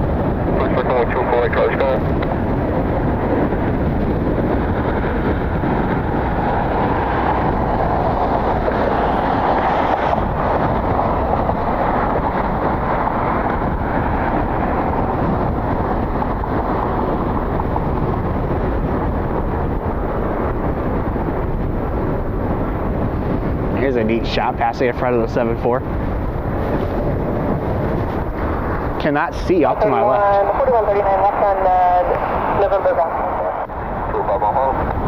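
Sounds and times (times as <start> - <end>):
jet airliner engines rushing: 0.0 - 35.0.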